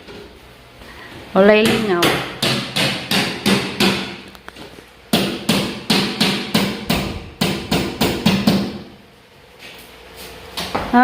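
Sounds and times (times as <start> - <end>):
steady low hum: 0.0 - 11.0
sharp hammering knocks: 1.6 - 4.3, 5.1 - 9.0.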